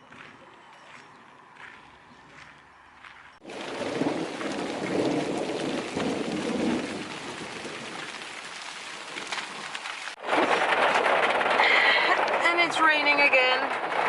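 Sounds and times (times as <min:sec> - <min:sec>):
heavy rain pouring: 0:03.4 - 0:14.0
low rumble of thunder: 0:03.4 - 0:14.0.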